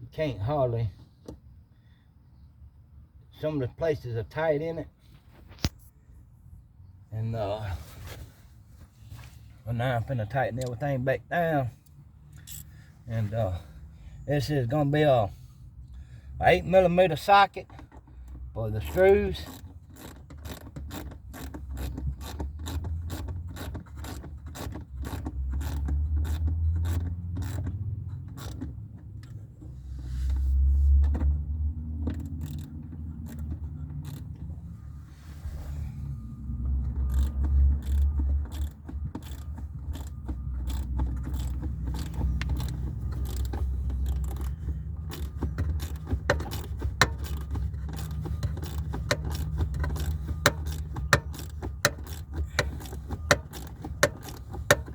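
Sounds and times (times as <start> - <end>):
ratchet clicking: 12.3 - 12.8, 18.8 - 29.4, 32.1 - 34.4, 36.8 - 54.9
low handling rumble: 25.4 - 54.9.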